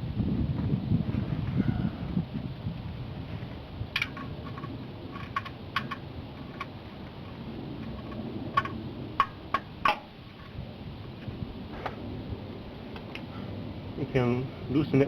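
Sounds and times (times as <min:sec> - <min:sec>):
ratchet metal clicks: 0:04.0 - 0:10.1.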